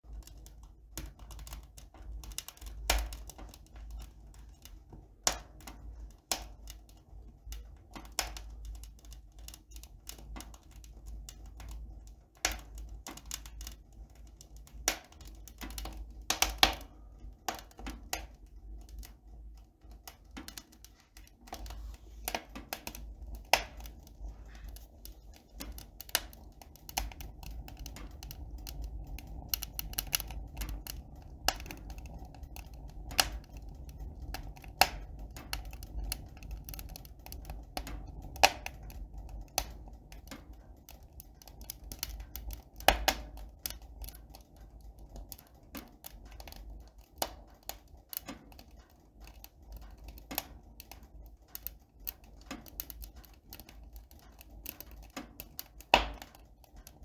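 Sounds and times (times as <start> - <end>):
sharp clicks and taps: 17.5 - 44.4
steady low hum: 18.2 - 44.1.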